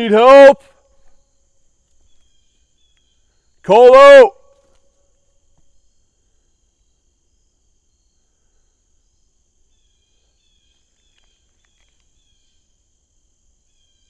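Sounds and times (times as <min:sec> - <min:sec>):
insect drone: 0:00.1 - 0:14.0.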